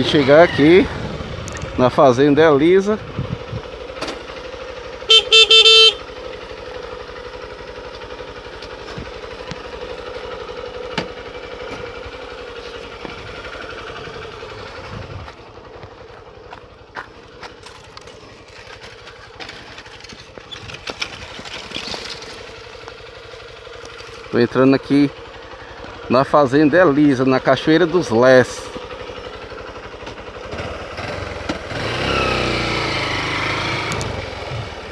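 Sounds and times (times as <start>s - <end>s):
motorcycle engine idling: 0.0s - 34.9s
loud short beep: 5.1s - 6.0s.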